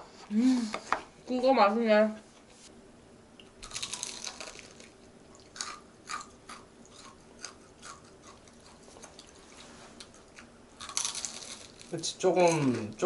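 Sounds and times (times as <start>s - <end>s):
fried chicken crunching: 3.6s - 9.3s, 10.8s - 12.8s.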